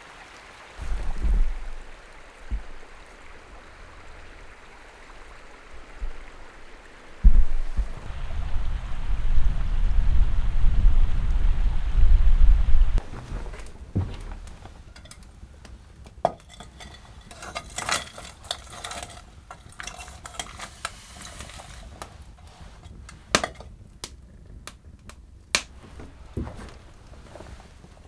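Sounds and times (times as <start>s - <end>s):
utensil clinking and scraping in pot: 13.0s - 23.9s.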